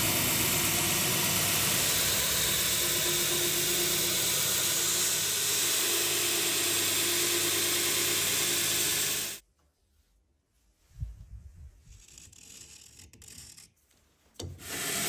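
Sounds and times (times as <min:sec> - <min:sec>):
motor hum: 0:00.0 - 0:09.4
steel grinding on belt grinder: 0:00.0 - 0:09.4.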